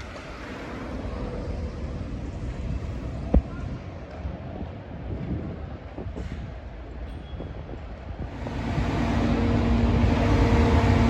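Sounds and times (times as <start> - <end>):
steady hum: 8.3 - 11.0
truck diesel engine running: 8.4 - 11.0.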